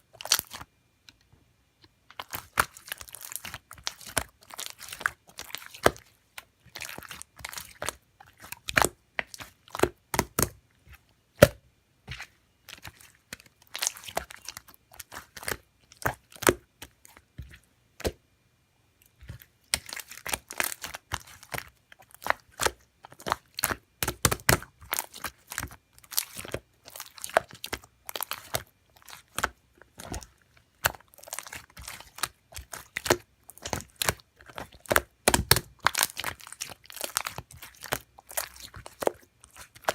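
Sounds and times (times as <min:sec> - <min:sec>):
slime clicking and popping: 0:06.8 - 0:10.6, 0:19.1 - 0:39.9.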